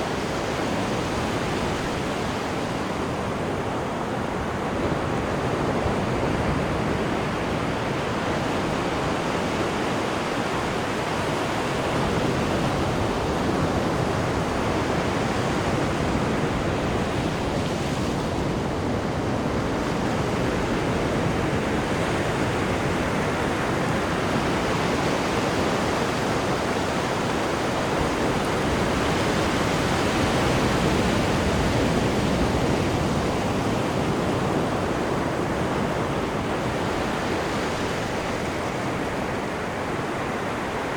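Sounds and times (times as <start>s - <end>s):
sea water rushing behind ship: 0.0s - 40.9s.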